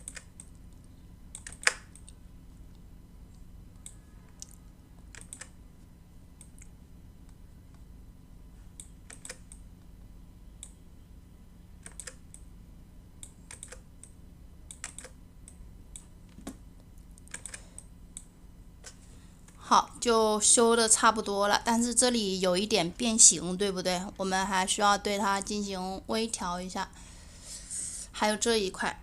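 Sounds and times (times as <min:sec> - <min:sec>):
mouse and keyboard clicks: 0:00.0 - 0:02.2, 0:03.8 - 0:05.6, 0:08.8 - 0:09.6, 0:11.8 - 0:12.4, 0:13.2 - 0:16.6, 0:17.2 - 0:19.0
low steady hum: 0:00.0 - 0:29.0.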